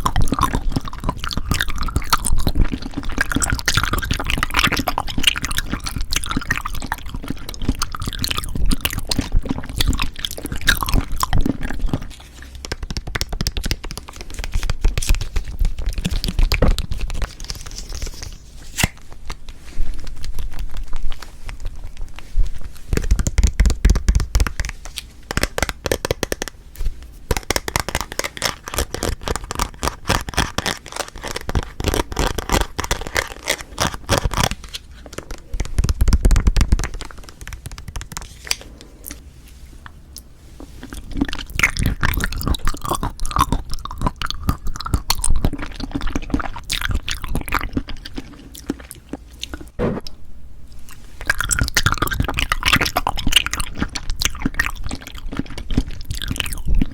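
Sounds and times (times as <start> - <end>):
wet chewing clicks: 0.0 - 18.2, 27.3 - 39.2, 40.2 - 49.8, 51.2 - 56.9.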